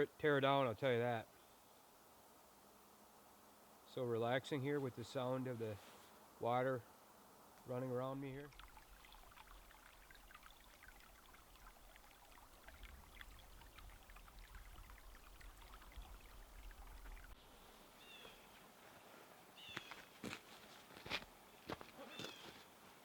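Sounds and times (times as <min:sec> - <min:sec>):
creek water trickling: 0:07.6 - 0:18.8, 0:19.4 - 0:20.5.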